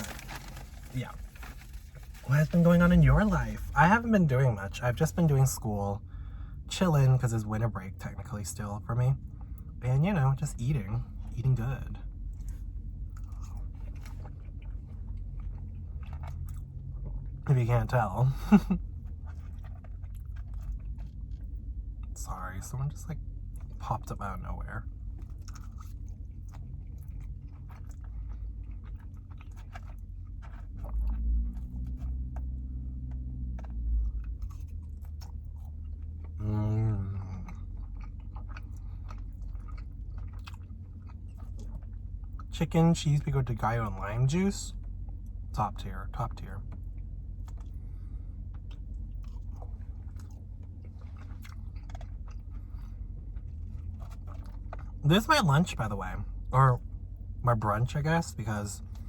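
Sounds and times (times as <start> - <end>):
low hum: 0.0 - 59.0
wet chewing mouth clicks: 12.3 - 17.4, 25.1 - 42.5, 46.7 - 55.2.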